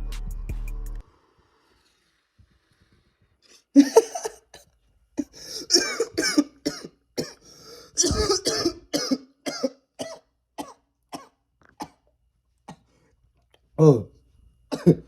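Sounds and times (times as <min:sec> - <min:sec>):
person coughing hard: 0:03.8 - 0:04.6, 0:05.2 - 0:12.0, 0:14.7 - 0:15.0.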